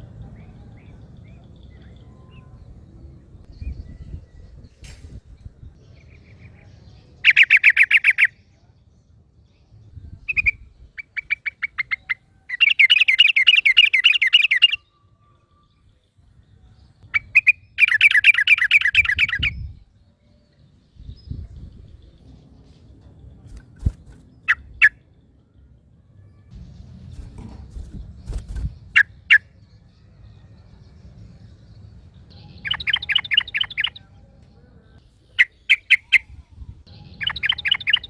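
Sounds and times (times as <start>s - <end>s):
bulbuls chattering song: 5.8s - 8.4s, 10.1s - 14.8s, 16.9s - 19.8s, 30.7s - 38.0s.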